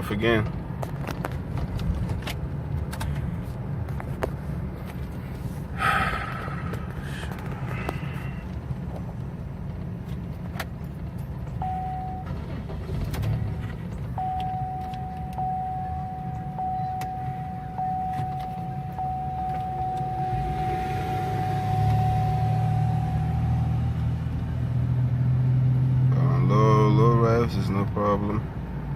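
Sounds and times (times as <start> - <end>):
road rumble inside car: 0.0 - 28.9
high electronic tone: 14.2 - 24.2.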